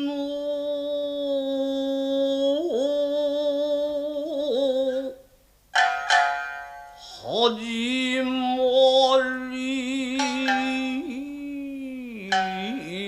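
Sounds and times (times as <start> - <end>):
person singing a long note: 0.0 - 5.2, 7.2 - 13.0
shamisen plucks: 5.8 - 7.0, 10.2 - 11.1, 12.3 - 13.0.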